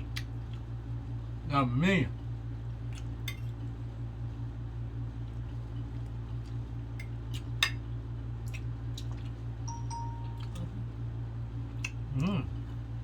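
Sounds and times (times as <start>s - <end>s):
low hum: 9.6s - 11.6s.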